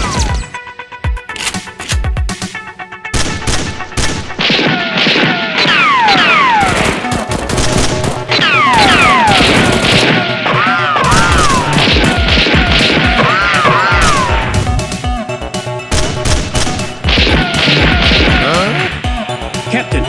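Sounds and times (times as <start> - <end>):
electronic background music: 0.0 - 20.0
gunfire sound effects: 3.2 - 15.1, 15.9 - 19.1.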